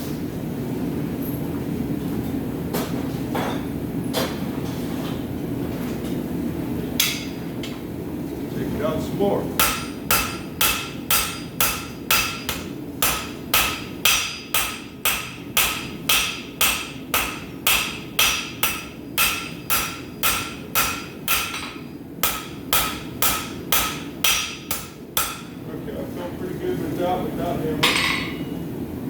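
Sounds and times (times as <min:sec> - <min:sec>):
hammer striking steel on anvil: 0:07.0 - 0:07.4, 0:09.6 - 0:25.6, 0:27.8 - 0:28.6.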